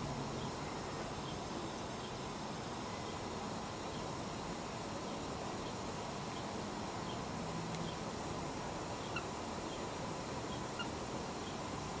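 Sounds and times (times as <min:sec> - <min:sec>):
steady hiss: 0:00.0 - 0:12.0
faint bird chirps: 0:00.4 - 0:04.1.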